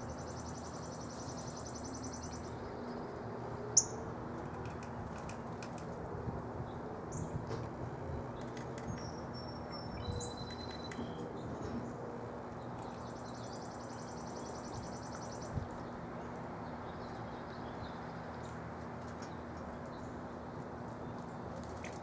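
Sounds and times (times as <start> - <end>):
songbird trilling: 8.9 - 11.2.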